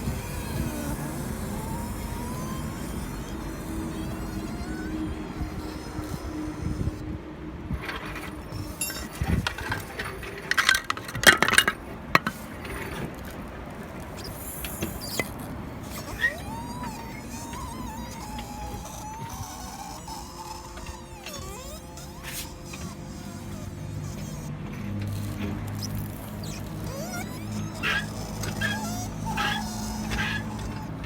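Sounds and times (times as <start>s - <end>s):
thin whine: 0.0s - 31.0s
suspension knocks and clinks: 7.8s - 13.4s.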